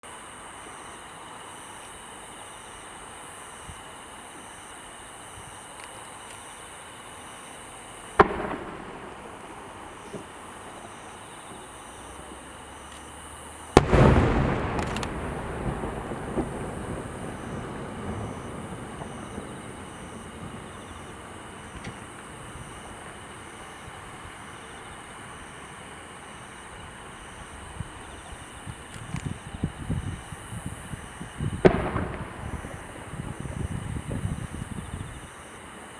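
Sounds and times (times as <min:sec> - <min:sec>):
firework boom echoing: 0:08.2 - 0:11.1, 0:13.8 - 0:23.0, 0:31.2 - 0:34.7
firework bang: 0:08.2 - 0:11.2, 0:13.8 - 0:23.9, 0:31.2 - 0:35.0
small firework pops: 0:08.2 - 0:11.7, 0:13.7 - 0:24.2, 0:28.4 - 0:35.0.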